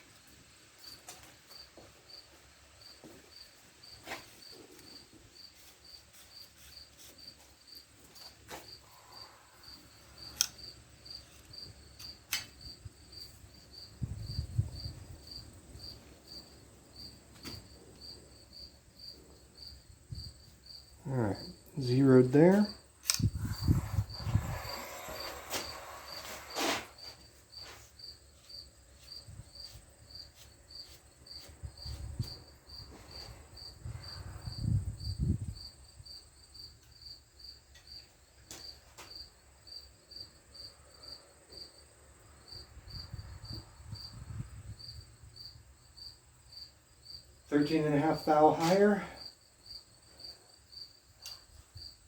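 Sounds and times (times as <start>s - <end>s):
cricket chirping: 0.7s - 52.0s
sharp clicks: 10.3s - 10.6s, 23.0s - 23.7s.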